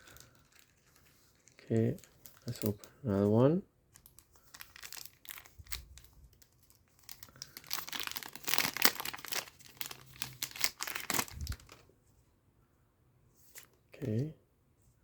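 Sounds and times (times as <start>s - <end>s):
foil pack crinkling and tearing: 0.0s - 2.9s, 4.0s - 11.8s.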